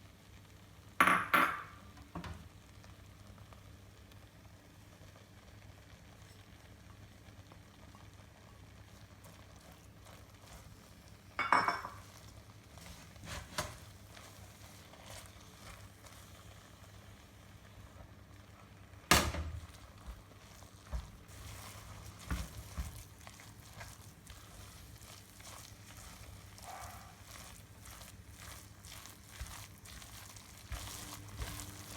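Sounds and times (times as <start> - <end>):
utensils clattering against cookware: 11.4 - 12.1.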